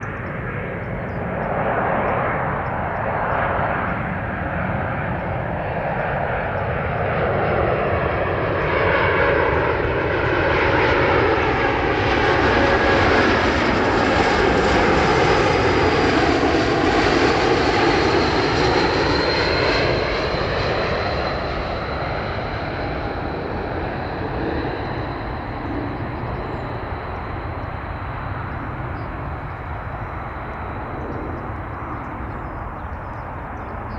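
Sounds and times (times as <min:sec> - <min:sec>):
airliner passing overhead: 0:00.0 - 0:33.9
high jet engine whine: 0:00.0 - 0:33.9.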